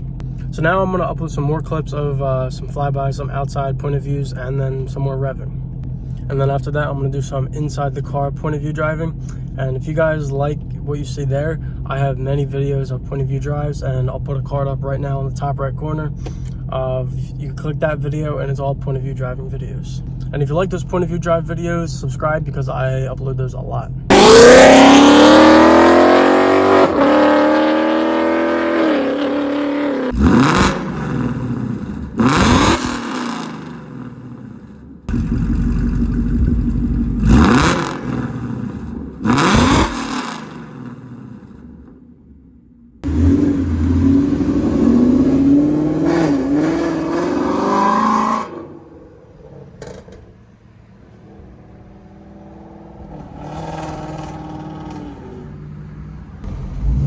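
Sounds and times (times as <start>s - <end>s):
car engine accelerating and revving: 24.1s - 41.4s, 43.0s - 49.2s, 51.2s - 57.0s.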